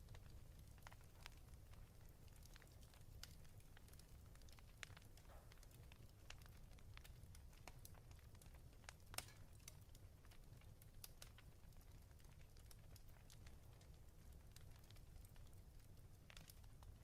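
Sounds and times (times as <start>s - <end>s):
fireplace crackling and popping: 0.0s - 17.0s.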